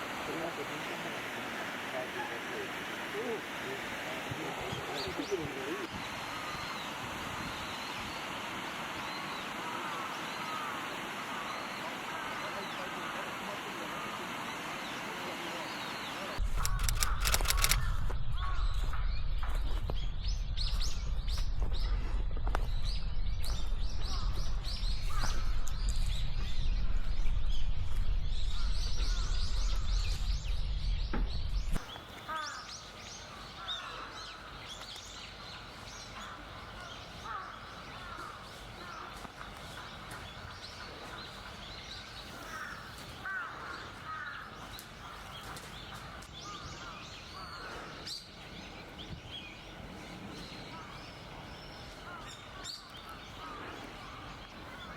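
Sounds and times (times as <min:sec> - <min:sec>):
birds chirping and calling: 0:00.3 - 0:08.2, 0:28.6 - 0:54.9.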